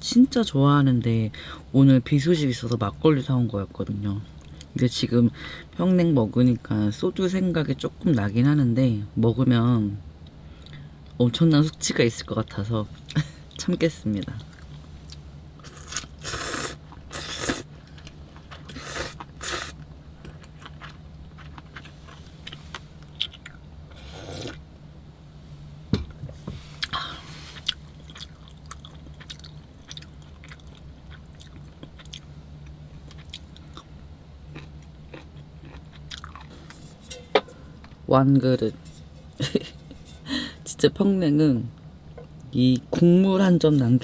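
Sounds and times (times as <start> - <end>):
steady low hum: 0.0 - 44.0
person chewing and slurping noodles: 15.6 - 24.6, 34.5 - 37.6.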